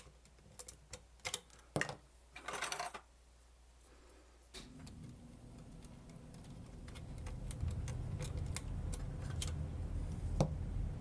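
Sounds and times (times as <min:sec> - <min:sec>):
small plastic parts clicking: 0:00.0 - 0:02.5.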